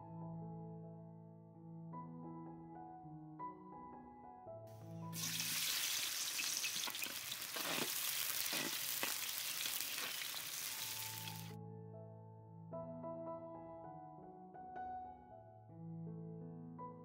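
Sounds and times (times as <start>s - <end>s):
soft piano music: 0.0s - 17.0s
onions sizzling in hot oil: 5.2s - 11.5s.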